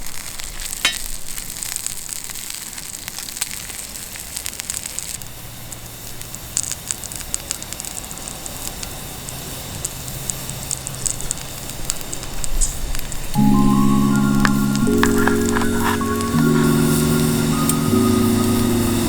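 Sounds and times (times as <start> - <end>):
meat sizzling on griddle: 0.0 - 13.3
campfire crackling: 0.0 - 19.0.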